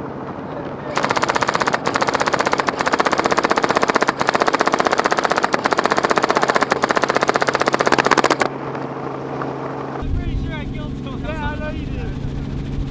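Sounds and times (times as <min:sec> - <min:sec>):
steady low hum: 0:00.0 - 0:12.9
airsoft machine gun firing: 0:00.9 - 0:08.5.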